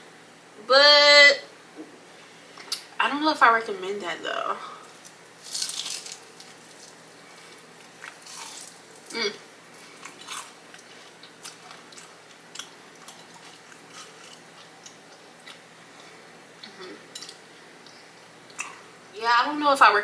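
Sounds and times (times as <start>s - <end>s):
crunchy biting and chewing: 4.9s - 9.2s, 9.8s - 15.7s
wet chewing clicks: 9.8s - 15.6s.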